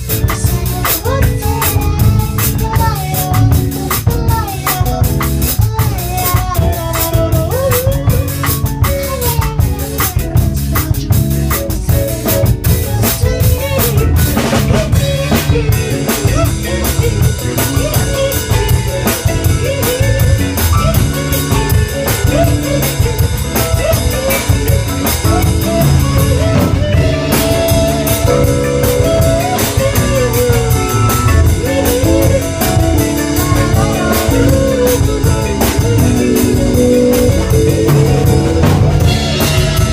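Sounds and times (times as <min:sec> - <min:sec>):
drum kit: 0:00.0 - 0:39.9
guitar: 0:00.0 - 0:39.9
gliding melody line: 0:11.6 - 0:39.9.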